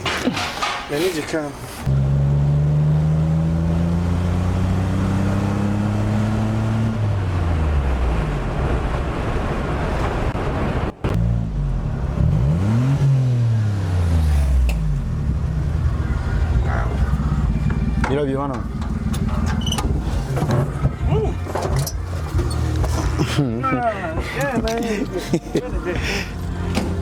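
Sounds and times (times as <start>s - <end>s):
car engine accelerating: 1.8s - 27.0s.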